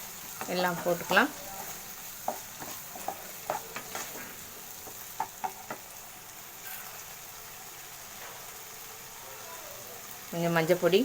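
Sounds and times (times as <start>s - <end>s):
vegetables sizzling in oil: 0.0s - 11.0s
spoon scraping and knocking pan: 0.2s - 5.9s.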